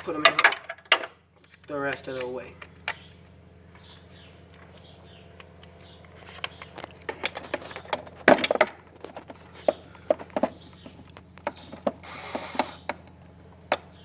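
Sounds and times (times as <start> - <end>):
metal parts clattering: 0.0 - 1.1.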